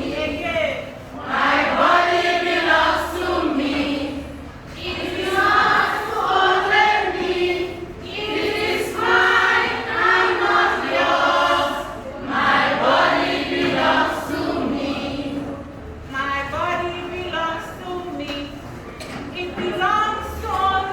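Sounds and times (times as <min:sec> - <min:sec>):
group of voices singing: 0:01.2 - 0:15.6.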